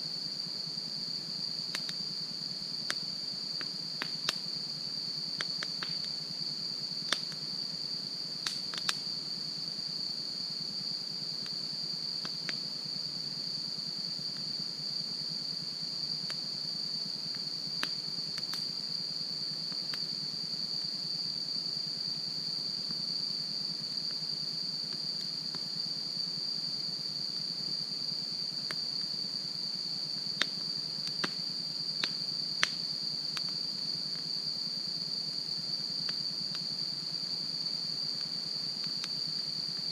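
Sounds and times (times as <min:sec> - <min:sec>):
insect chorus: 0:00.0 - 0:39.9
campfire crackling and popping: 0:01.7 - 0:02.0, 0:03.6 - 0:04.5, 0:05.4 - 0:06.2, 0:07.0 - 0:07.5, 0:08.4 - 0:09.1, 0:17.8 - 0:18.7, 0:30.3 - 0:34.2.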